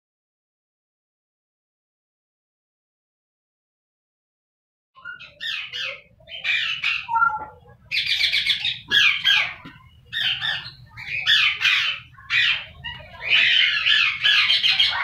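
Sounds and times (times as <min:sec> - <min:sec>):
birds squawking harshly: 0:05.0 - 0:15.0.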